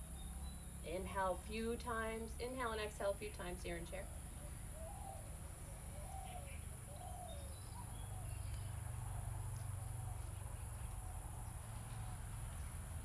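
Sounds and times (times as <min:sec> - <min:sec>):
low steady hum: 0:00.0 - 0:13.0
soft bird coos: 0:04.1 - 0:12.3.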